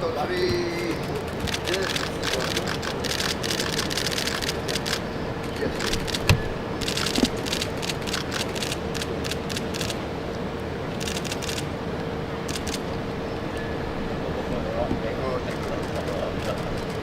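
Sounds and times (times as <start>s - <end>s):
camera shutters clicking: 0.8s - 10.0s, 11.0s - 11.7s, 12.5s - 12.8s.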